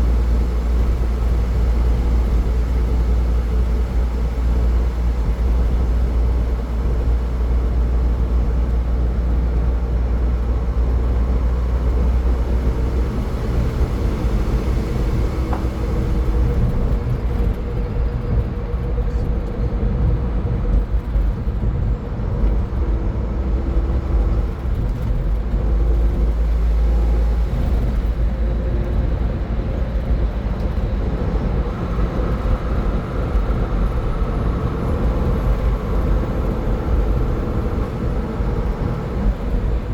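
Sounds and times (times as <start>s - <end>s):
car engine: 0.0s - 39.9s
road and tyre noise: 0.0s - 39.9s.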